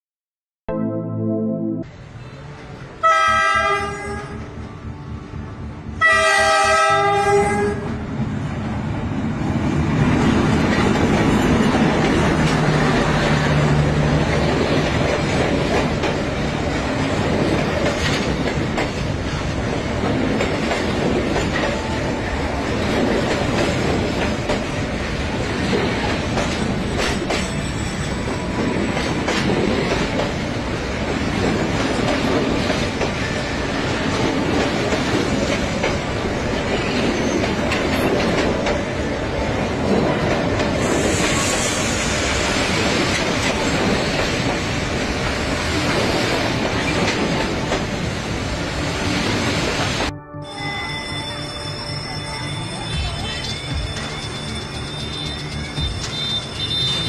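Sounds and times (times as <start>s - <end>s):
train horn: 3.0s - 4.6s, 6.0s - 7.9s, 56.0s - 57.0s
train wheels clattering on rails: 9.8s - 50.1s, 53.0s - 57.0s.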